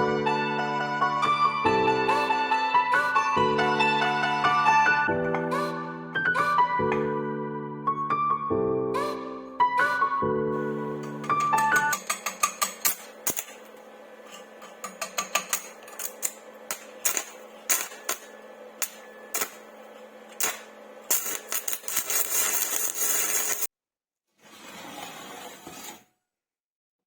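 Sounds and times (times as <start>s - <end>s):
high grinding noise: 10.6s - 23.7s
sharp taps and clicks on metal: 11.0s - 13.7s, 14.3s - 19.6s.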